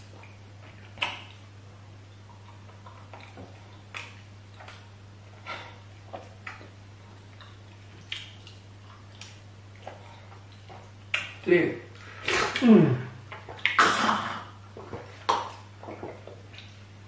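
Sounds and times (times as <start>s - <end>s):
wet chewing smacks: 0.0s - 11.4s
steady low hum: 0.0s - 17.0s.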